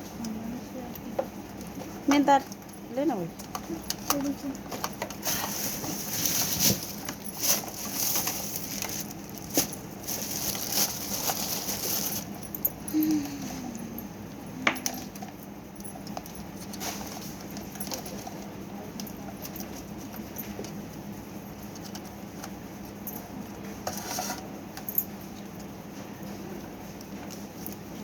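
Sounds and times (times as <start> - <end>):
steady low hum: 0.0 - 28.0
small parts clicking and rattling: 1.0 - 13.4.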